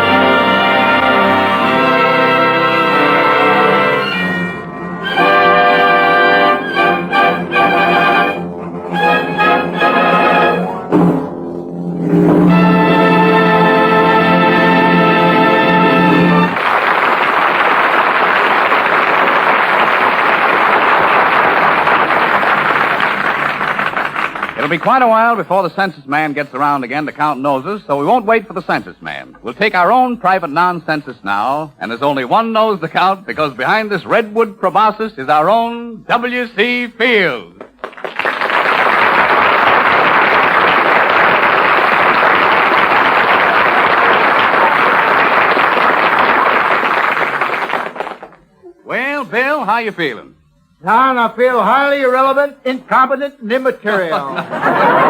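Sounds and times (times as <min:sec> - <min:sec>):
audience applauding: 0:14.8 - 0:25.2, 0:37.6 - 0:48.4, 0:54.5 - 0:55.0.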